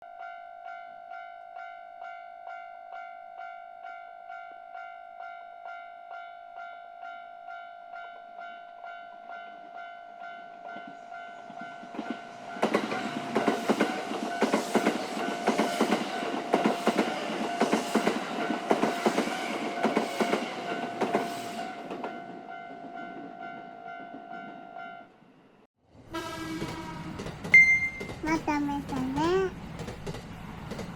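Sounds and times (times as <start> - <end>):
train wheels clacking over rail joints: 11.8 - 22.2, 26.5 - 28.2, 28.8 - 30.9
level crossing alarm ringing: 27.6 - 28.2.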